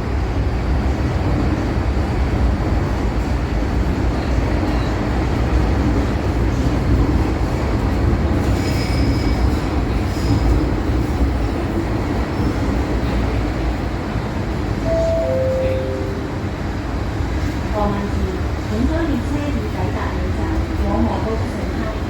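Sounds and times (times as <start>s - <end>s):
train wheels rumbling on rails: 0.0s - 15.3s
faint high wheel squeal: 8.6s - 10.4s.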